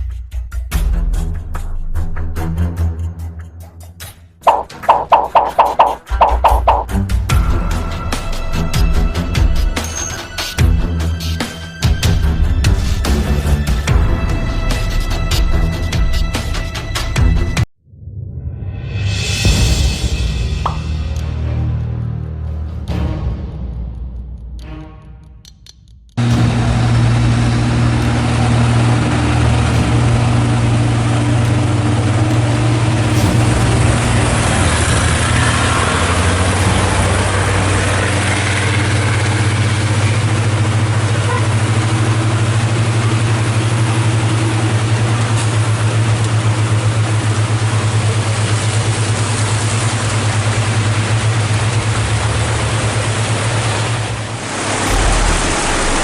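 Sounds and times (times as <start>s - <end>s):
heavy rain: 26.2s - 56.0s
running water: 27.7s - 56.0s.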